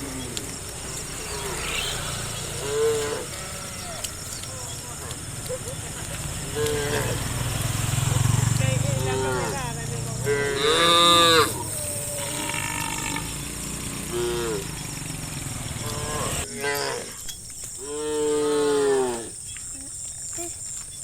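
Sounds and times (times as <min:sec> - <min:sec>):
cattle mooing: 0:00.0 - 0:05.1, 0:06.3 - 0:14.8, 0:15.8 - 0:17.1.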